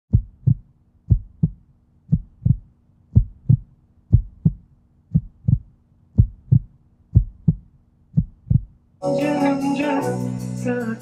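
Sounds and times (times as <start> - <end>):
heartbeat thumps: 0.1 - 8.8.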